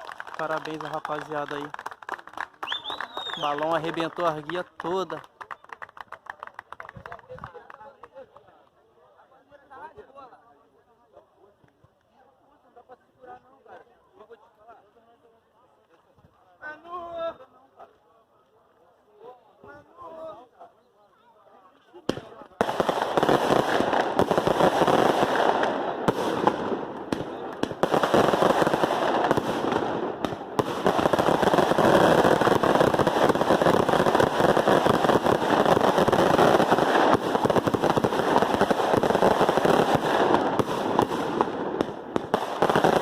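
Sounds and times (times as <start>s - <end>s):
firecrackers crackling: 0.0s - 8.3s, 22.0s - 43.0s.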